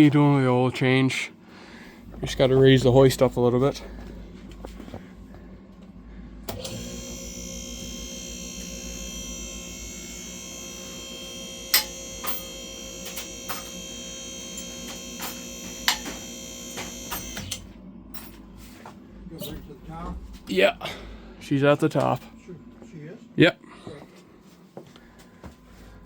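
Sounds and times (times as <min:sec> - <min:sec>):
hydraulic pump motor running: 0:06.5 - 0:17.7.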